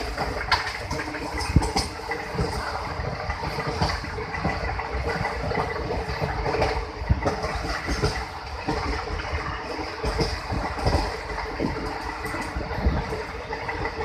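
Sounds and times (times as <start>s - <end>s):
knocks and clacks: 0.0s - 2.7s
train wheels rumbling on track: 0.0s - 14.0s.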